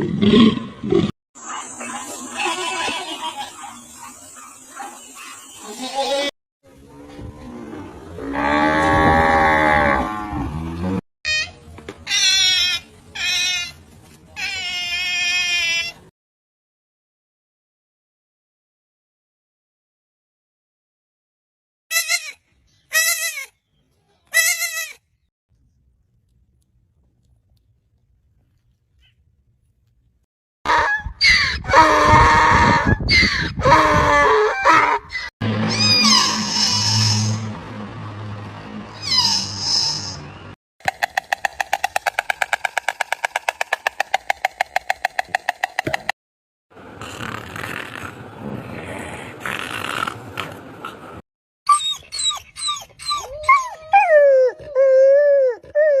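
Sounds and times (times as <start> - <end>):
dog yelping: 51.7 - 56.0.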